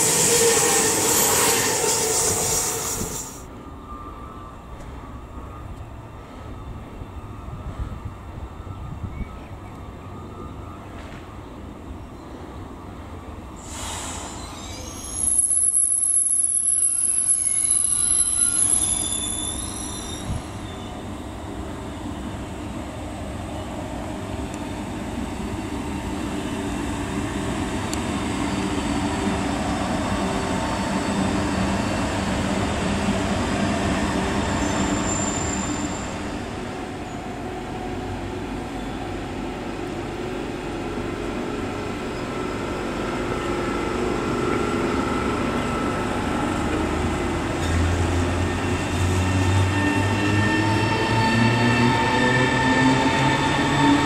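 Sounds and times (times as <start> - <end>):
high-pitched wheel squeal: 0.0 - 3.4, 13.6 - 21.1, 34.4 - 36.5.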